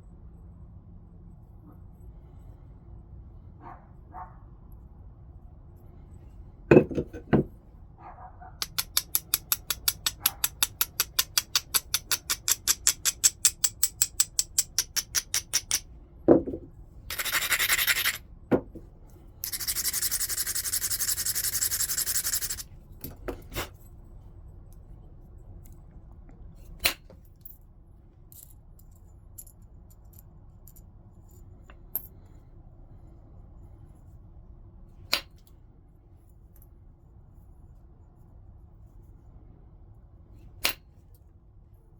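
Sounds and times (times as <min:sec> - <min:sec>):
knock: 0:06.7 - 0:07.5, 0:16.3 - 0:16.7, 0:18.5 - 0:18.8
stone scraping: 0:06.7 - 0:07.5, 0:15.0 - 0:18.8, 0:19.4 - 0:22.6
stone clicking on stone: 0:08.6 - 0:15.9
stone rubbing on stone edge: 0:17.1 - 0:18.2, 0:19.4 - 0:22.7.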